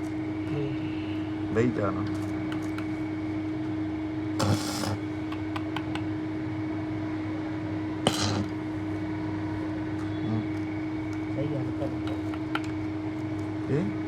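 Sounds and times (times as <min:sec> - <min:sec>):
machine hum: 0:00.0 - 0:14.0
short bursts of hiss: 0:04.4 - 0:05.0
sharp click: 0:04.4 - 0:06.1.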